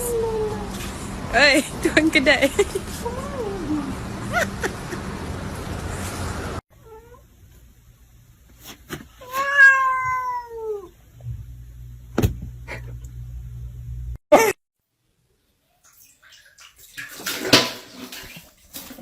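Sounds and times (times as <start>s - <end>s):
cat meowing: 9.2s - 10.9s.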